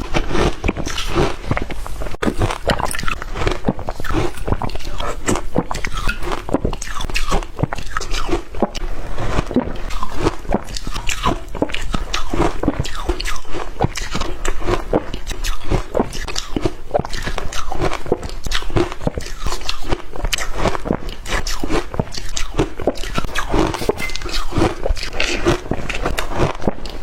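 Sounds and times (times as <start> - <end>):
shaved ice crunching: 0.0 - 5.2.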